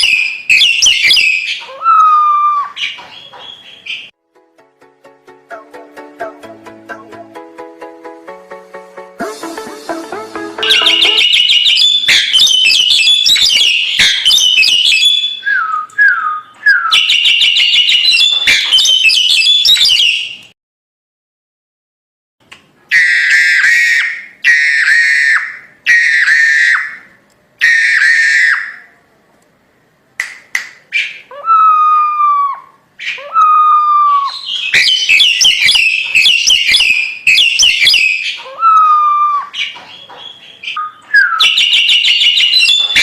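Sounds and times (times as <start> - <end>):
myna bird singing: 0.0 - 4.2, 10.3 - 20.5, 33.0 - 43.0.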